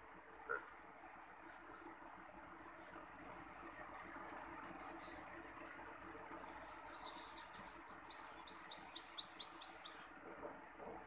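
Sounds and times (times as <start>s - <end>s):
songbird singing: 0.5s - 2.0s, 2.6s - 4.0s, 4.6s - 10.1s.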